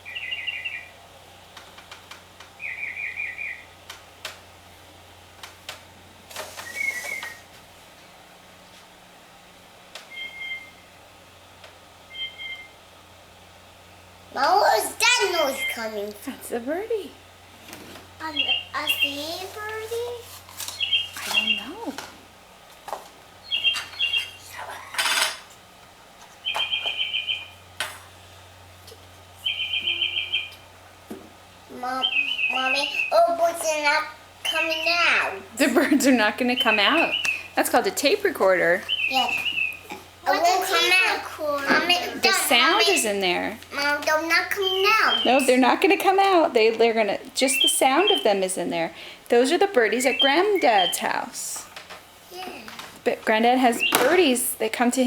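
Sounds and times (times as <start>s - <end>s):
recorded bird chirps: 0.0s - 1.0s, 2.6s - 3.8s, 6.6s - 7.5s, 10.1s - 11.0s, 12.1s - 12.8s, 15.4s - 16.0s, 18.2s - 19.4s, 20.6s - 21.9s, 23.4s - 24.6s, 26.4s - 27.6s, 29.4s - 30.7s, 31.8s - 35.1s, 35.8s - 41.0s, 44.6s - 45.8s, 47.4s - 48.6s, 49.4s - 51.3s, 53.6s - 54.4s.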